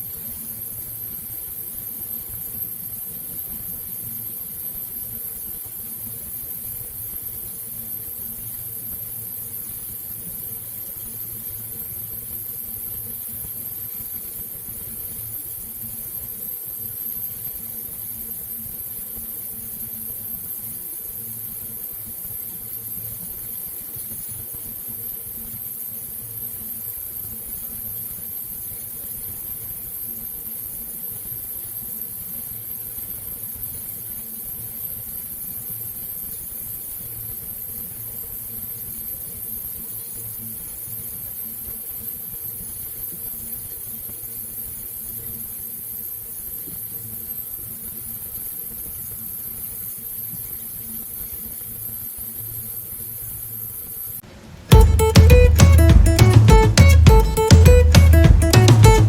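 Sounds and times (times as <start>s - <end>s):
faint high whine: 0.0s - 59.0s
machine hum: 54.7s - 59.0s.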